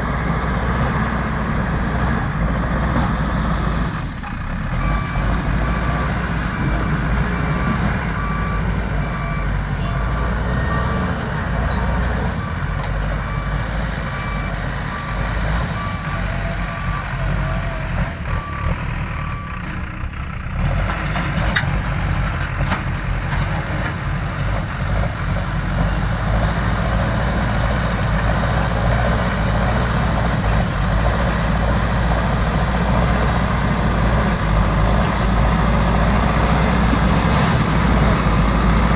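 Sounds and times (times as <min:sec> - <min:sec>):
diesel engine running: 0:00.0 - 0:38.9
reversing alarm beeping: 0:04.8 - 0:19.6.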